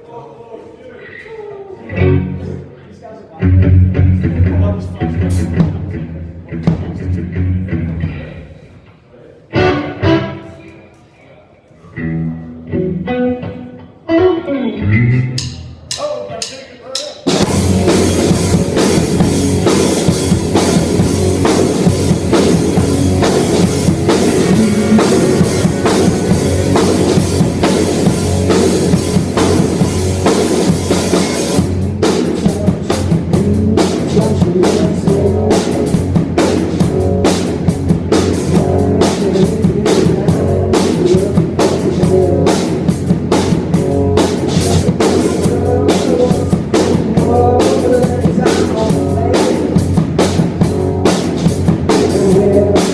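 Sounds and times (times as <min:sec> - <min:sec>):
live rock band playing: 0:01.9 - 0:02.7, 0:03.4 - 0:08.3, 0:09.5 - 0:10.8, 0:12.0 - 0:16.5, 0:17.1 - 0:52.9
drum hits: 0:05.3 - 0:07.2, 0:15.4 - 0:52.9.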